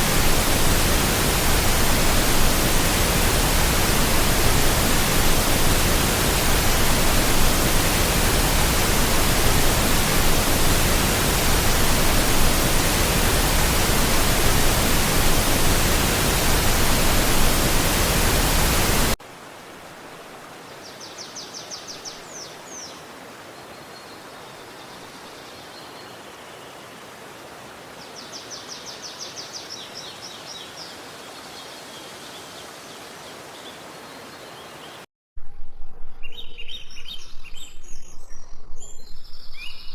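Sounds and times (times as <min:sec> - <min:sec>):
loud rush of water: 0:00.0 - 0:21.5.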